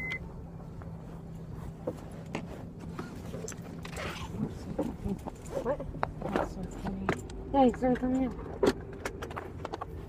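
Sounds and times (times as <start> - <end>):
car engine idling: 0.0 - 10.0
small clicks and knocks: 4.8 - 10.0.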